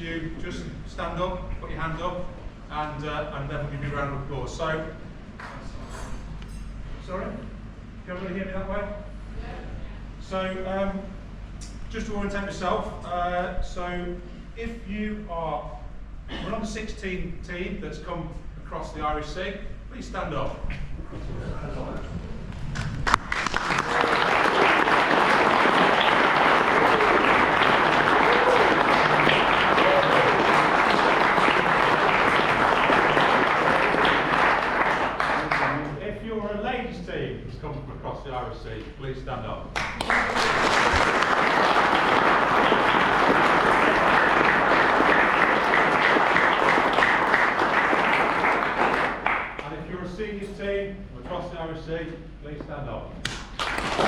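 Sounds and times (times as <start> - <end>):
audience applauding: 22.8 - 35.9, 39.8 - 49.7, 53.5 - 54.0.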